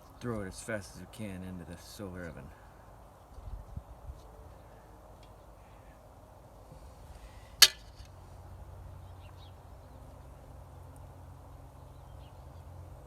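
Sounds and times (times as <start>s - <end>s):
faint bird chirps: 2.3s - 6.1s.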